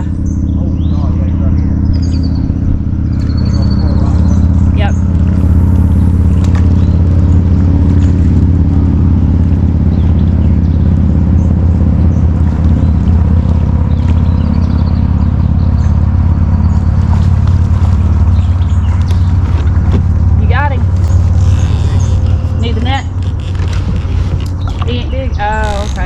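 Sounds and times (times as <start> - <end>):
bird chirps: 0.0 - 8.4, 9.2 - 26.0
loud low rumble: 0.0 - 26.0.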